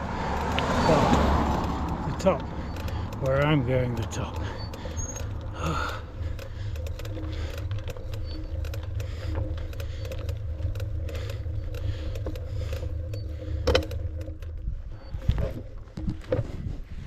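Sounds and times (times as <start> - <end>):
bike rattling over rough ground: 0.0 - 17.0.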